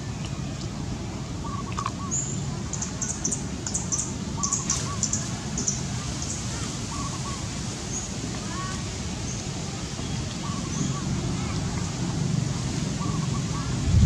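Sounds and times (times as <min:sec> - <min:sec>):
small birds chirping: 0:01.4 - 0:08.1
low background rumble: 0:13.6 - 0:14.0.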